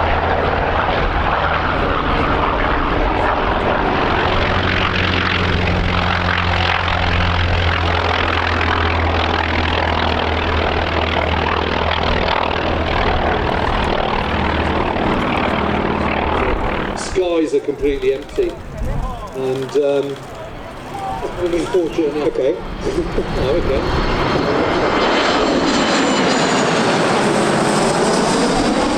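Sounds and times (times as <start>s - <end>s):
propeller aircraft engine drone: 0.0s - 28.9s.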